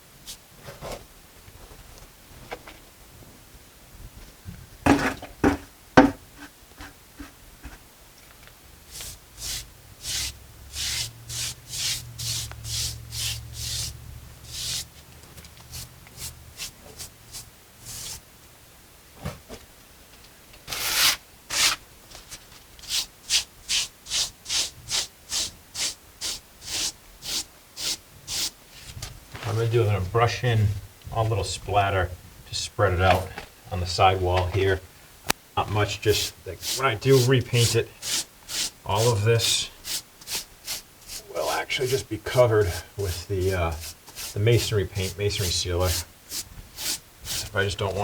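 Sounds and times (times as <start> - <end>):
knocks: 4.9 - 6.2
brush scrubbing wet mortar: 8.9 - 15.0, 15.6 - 18.2, 22.8 - 30.0, 35.6 - 48.0.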